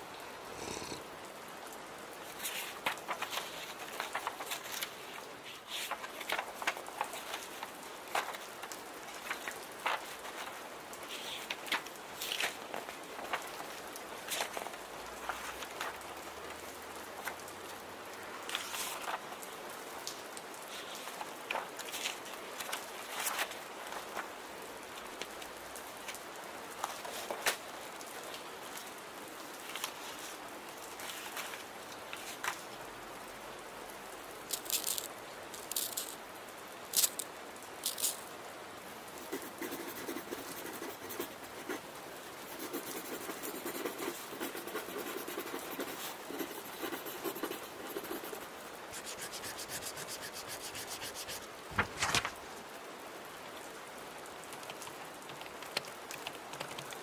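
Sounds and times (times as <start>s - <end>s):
steady rain: 0.0s - 57.0s
paper rustling: 2.4s - 16.0s, 18.5s - 19.3s, 20.7s - 24.3s, 26.8s - 27.7s, 31.0s - 32.7s, 34.5s - 36.2s, 36.9s - 37.2s, 39.2s - 52.6s
pen scratching on paper: 39.2s - 41.8s, 42.4s - 51.5s.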